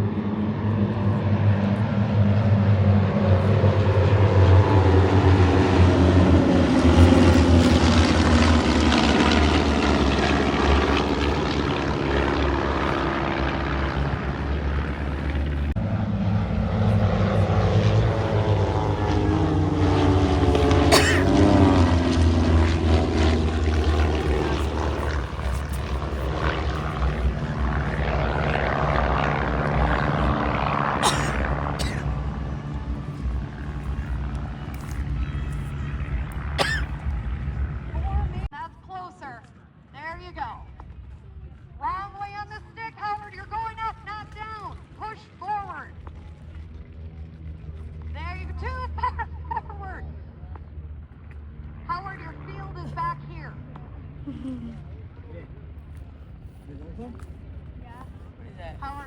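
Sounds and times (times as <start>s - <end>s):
propeller aircraft droning past: 0.0s - 59.0s.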